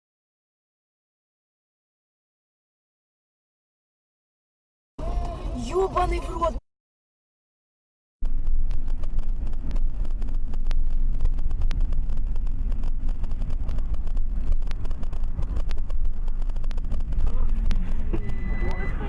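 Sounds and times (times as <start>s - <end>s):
car engine and road rumble: 5.0s - 6.6s, 8.2s - 19.0s.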